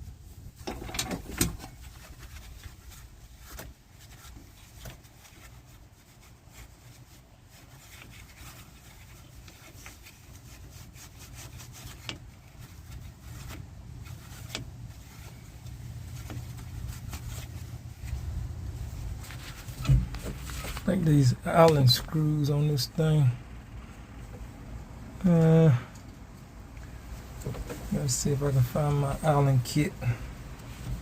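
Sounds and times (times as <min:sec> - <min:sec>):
steady low hum: 0:00.0 - 0:31.0
clicks and knocks of hand work: 0:00.6 - 0:02.7.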